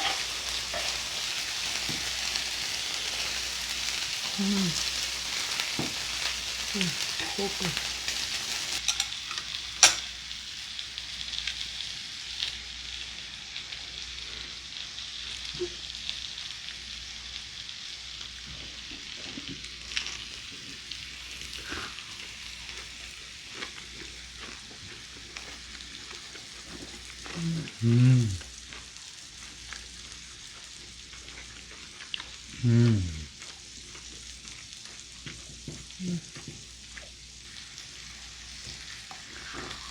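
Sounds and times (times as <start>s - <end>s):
meat sizzling in a pan: 0.0s - 39.9s
short low voice sounds: 27.4s - 28.5s, 32.6s - 33.3s.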